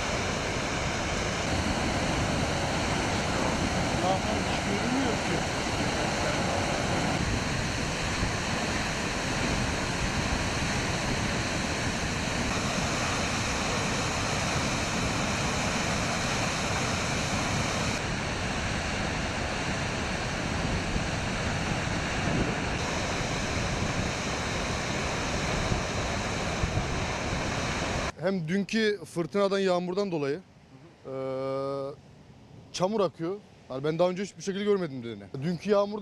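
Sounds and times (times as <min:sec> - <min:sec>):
waterfall rushing: 0:00.0 - 0:28.1.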